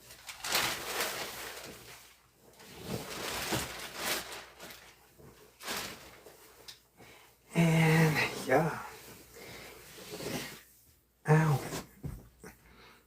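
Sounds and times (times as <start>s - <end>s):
plastic sheeting rustling: 0.0s - 6.8s.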